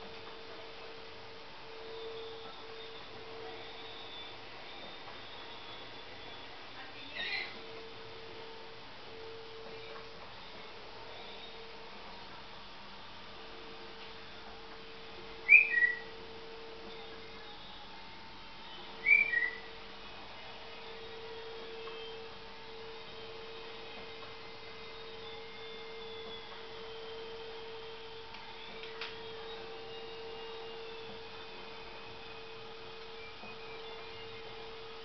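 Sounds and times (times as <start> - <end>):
low hum: 0.0 - 35.0
parrot whistling: 15.4 - 16.2, 18.6 - 19.8, 24.8 - 32.5.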